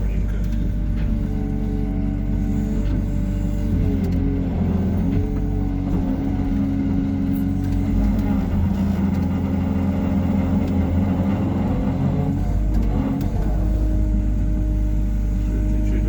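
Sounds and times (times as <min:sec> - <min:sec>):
excavator diesel engine droning: 0:00.0 - 0:16.0.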